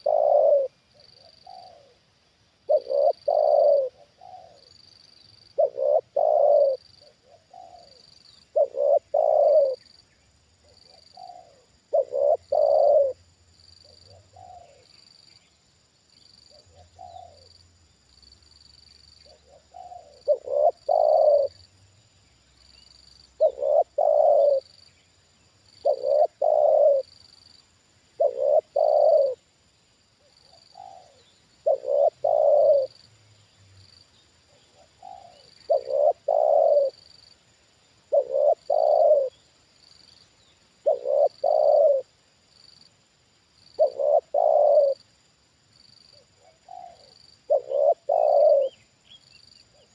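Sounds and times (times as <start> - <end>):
dove cooing: 0.0 - 2.0, 2.6 - 4.8, 5.5 - 9.9, 10.6 - 14.9, 16.5 - 17.6, 19.2 - 21.7, 23.2 - 24.7, 25.8 - 27.3, 28.1 - 29.4, 30.2 - 33.0, 34.5 - 37.1, 38.0 - 39.5, 40.8 - 42.2, 43.8 - 45.0, 46.1 - 48.8.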